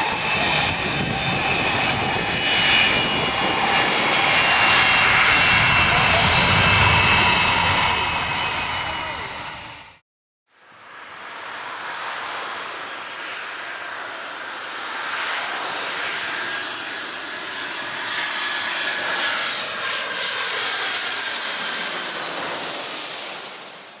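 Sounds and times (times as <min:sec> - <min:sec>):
jet engines roaring and whining: 0:00.0 - 0:10.0, 0:10.7 - 0:24.0.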